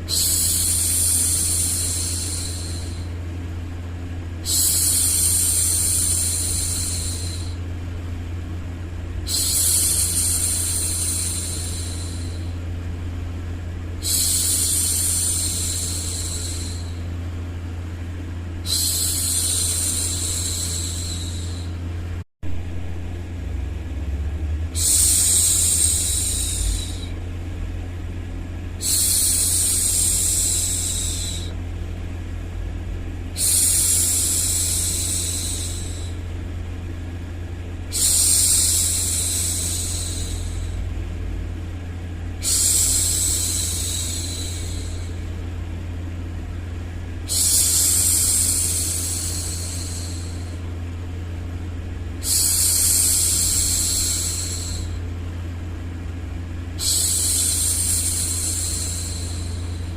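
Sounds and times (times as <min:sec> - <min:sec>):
woman shushing: 0:00.0 - 0:03.2, 0:04.4 - 0:07.6, 0:09.3 - 0:12.6, 0:14.0 - 0:17.0, 0:18.6 - 0:21.8, 0:24.8 - 0:27.2, 0:28.8 - 0:31.6, 0:33.4 - 0:36.2, 0:37.9 - 0:40.9, 0:42.4 - 0:45.2, 0:47.3 - 0:50.7, 0:52.2 - 0:55.0, 0:56.8 - 0:59.9
steady low hum: 0:00.0 - 0:59.9.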